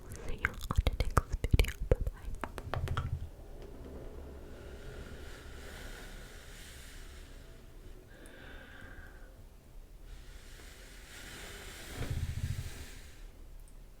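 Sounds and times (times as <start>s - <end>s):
person whispering: 0.0s - 3.2s
breath puff on microphone: 10.1s - 13.3s.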